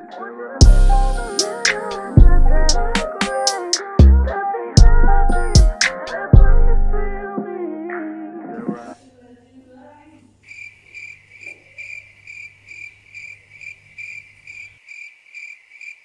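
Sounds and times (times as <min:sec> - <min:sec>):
music: 0:00.0 - 0:08.9
cricket chirping: 0:10.4 - 0:16.0.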